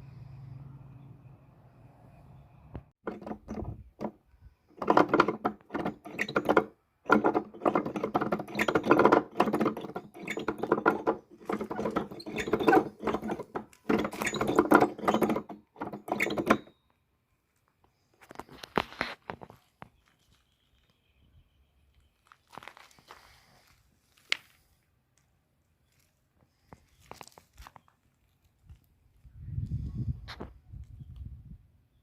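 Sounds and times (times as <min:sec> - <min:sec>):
mechanical machine clicking and rattling: 0:03.1 - 0:04.1, 0:04.8 - 0:16.7.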